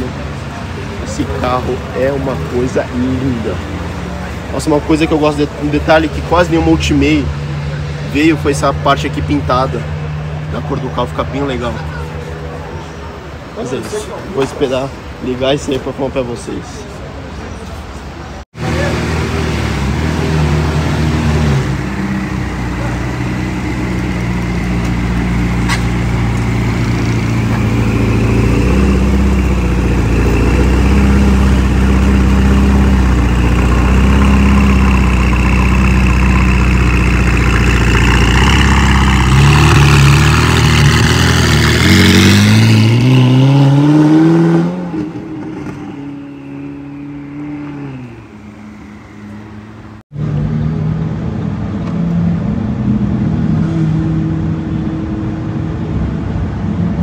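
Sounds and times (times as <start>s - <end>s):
sports car engine revving: 18.6s - 51.3s.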